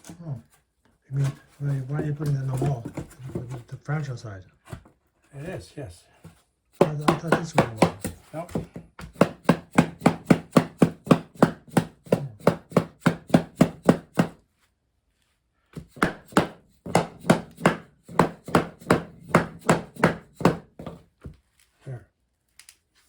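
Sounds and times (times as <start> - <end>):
rapid hammer blows on floor tile: 6.8 - 14.4, 15.8 - 21.0.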